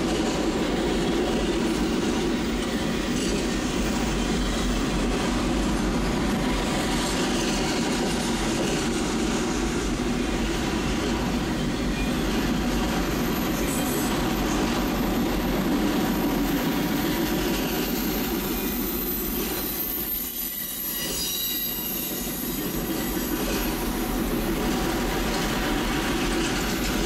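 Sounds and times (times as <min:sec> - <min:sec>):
freight train wheels rumbling: 0:00.0 - 0:27.0
high wheel squeal: 0:11.5 - 0:24.0.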